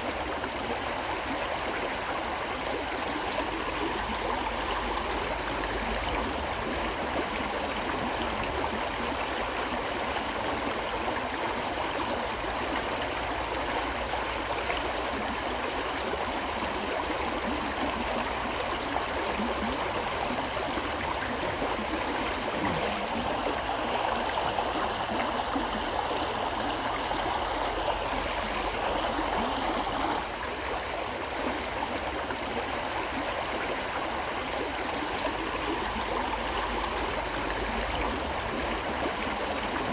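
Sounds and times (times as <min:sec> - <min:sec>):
river water rushing: 0:19.9 - 0:31.3.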